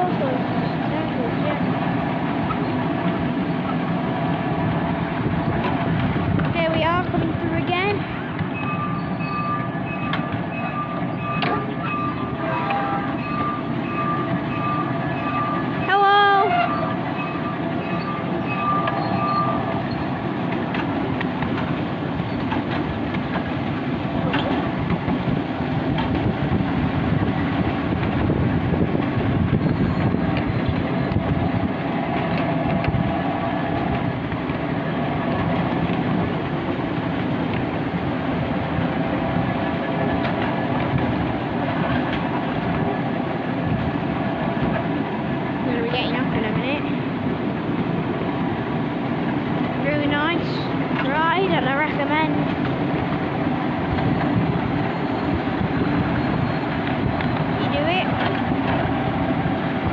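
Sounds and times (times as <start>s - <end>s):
train wheels rumbling on track: 0.0s - 59.9s
high wheel squeal: 8.5s - 20.2s, 29.5s - 31.2s, 54.0s - 58.2s.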